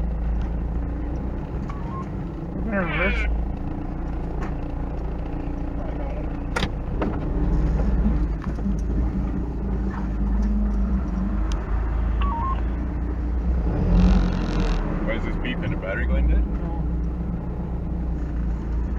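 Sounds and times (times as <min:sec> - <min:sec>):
truck engine running: 0:00.0 - 0:18.9
electronic beep rising and falling: 0:12.2 - 0:12.7.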